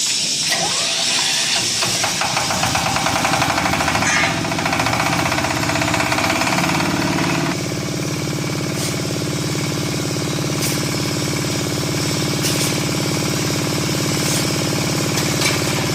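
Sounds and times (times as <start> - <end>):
fast mechanical clatter: 0.5 - 7.6
diesel engine running: 2.0 - 15.9.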